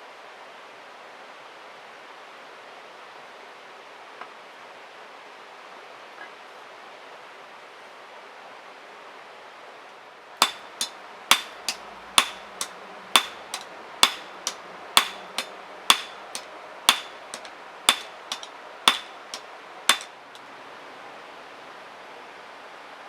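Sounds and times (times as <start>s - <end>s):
hammer striking metal on anvil: 10.4s - 20.2s.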